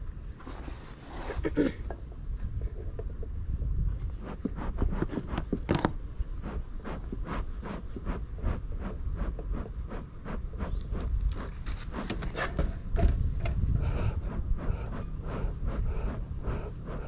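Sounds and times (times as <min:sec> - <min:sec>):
low rumble: 0:05.9 - 0:17.0.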